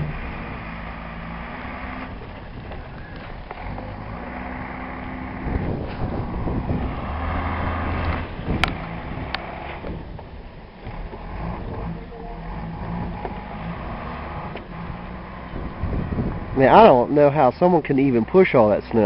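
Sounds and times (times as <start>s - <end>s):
snowplow engine running: 0.0s - 19.0s.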